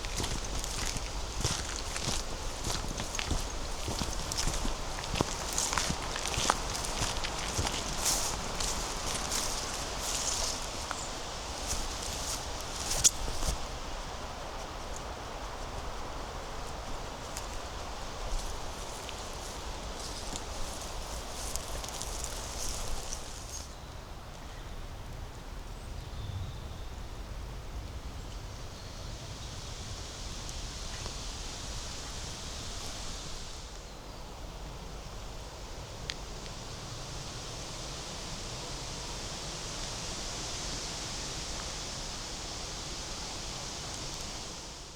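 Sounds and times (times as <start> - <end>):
rustling in leaf litter: 0.0 - 23.8
rushing hiss of leaves: 0.0 - 23.9, 28.2 - 44.9.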